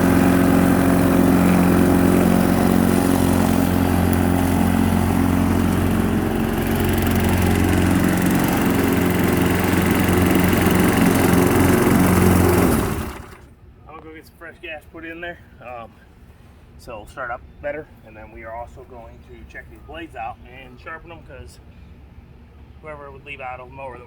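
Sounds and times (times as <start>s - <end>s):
lawn mower engine running: 0.0s - 13.5s.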